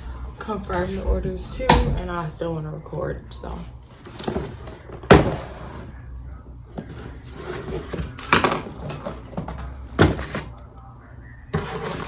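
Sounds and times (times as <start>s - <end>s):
household clatter: 6.8s - 10.5s.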